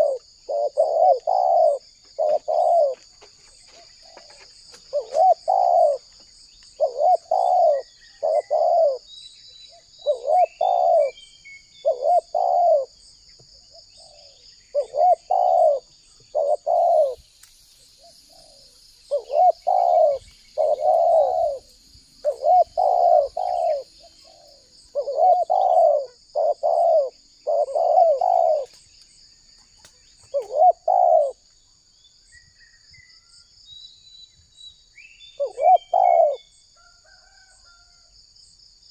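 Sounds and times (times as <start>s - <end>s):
dove cooing: 0.0s - 6.2s, 6.8s - 9.1s, 9.7s - 11.2s, 11.8s - 13.0s, 13.8s - 17.2s, 18.0s - 28.8s, 30.3s - 31.4s, 35.4s - 36.5s
high insect buzz: 15.0s - 29.1s.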